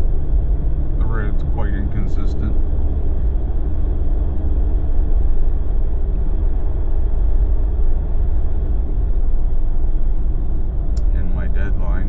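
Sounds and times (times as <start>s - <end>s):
vehicle engine and tyre rumble: 0.0s - 12.0s.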